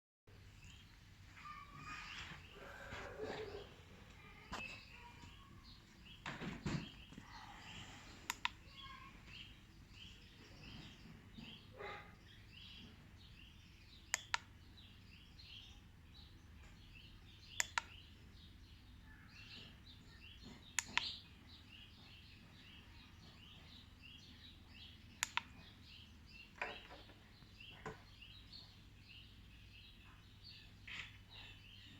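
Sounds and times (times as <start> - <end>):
small birds chirping: 0.3 - 31.9
sharp double clicks: 17.6 - 18.0, 25.2 - 25.7.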